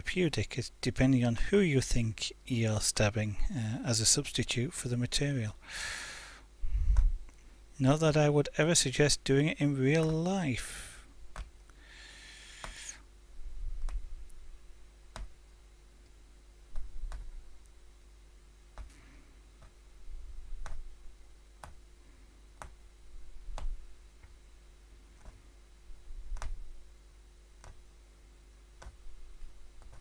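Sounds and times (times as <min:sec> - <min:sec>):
faint steady hum: 0:00.0 - 0:30.0
punch needle clicking through fabric: 0:11.3 - 0:11.5, 0:12.6 - 0:13.0, 0:15.1 - 0:15.4, 0:16.7 - 0:17.4, 0:20.5 - 0:21.0, 0:21.6 - 0:21.8, 0:22.6 - 0:22.8, 0:23.5 - 0:24.4, 0:25.2 - 0:25.4, 0:26.3 - 0:26.7, 0:27.6 - 0:27.9, 0:28.8 - 0:29.0, 0:29.8 - 0:30.0.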